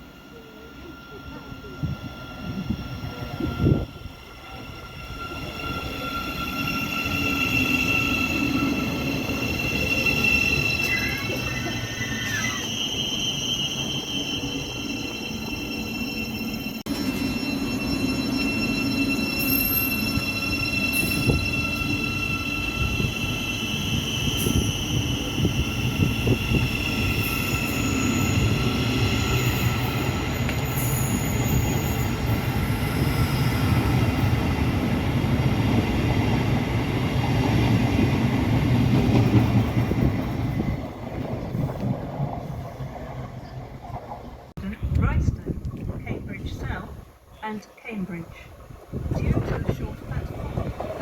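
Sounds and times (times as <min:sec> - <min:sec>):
train rail and wheel rumble: 0:00.0 - 0:51.0
high squealing wheel tones: 0:00.2 - 0:35.0.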